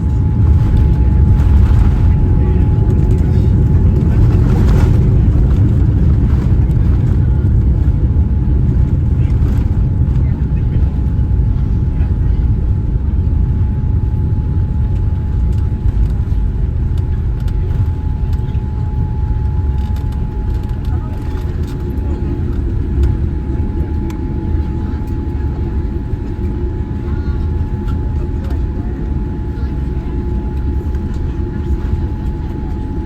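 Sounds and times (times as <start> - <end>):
airliner cabin low rumble: 0.0 - 33.0
thin steady whine: 13.0 - 33.0.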